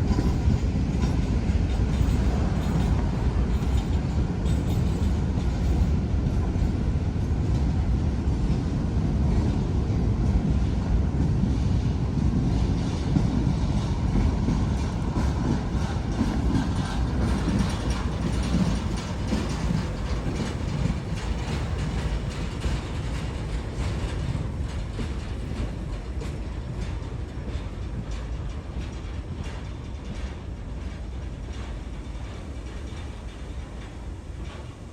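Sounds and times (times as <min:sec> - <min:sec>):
freight train rumbling past: 0:00.0 - 0:34.9
wheels clacking over rail joints: 0:12.6 - 0:34.9.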